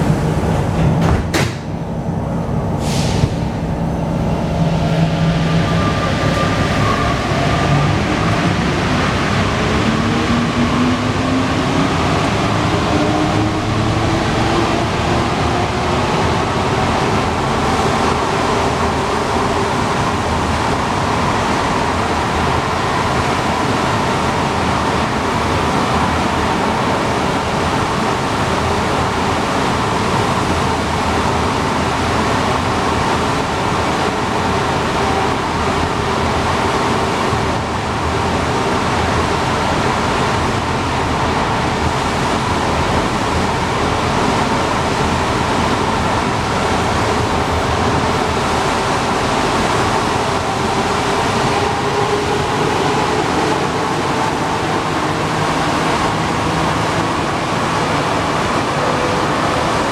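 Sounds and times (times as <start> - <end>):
metro train running: 0.0 - 59.9.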